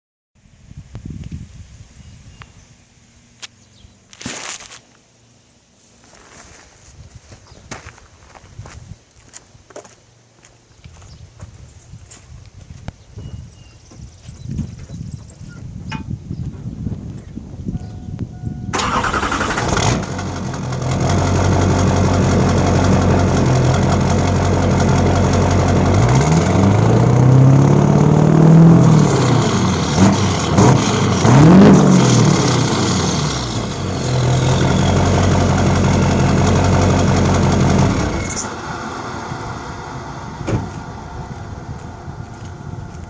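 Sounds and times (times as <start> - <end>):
diesel engine idling and revving: 17.8 - 43.0.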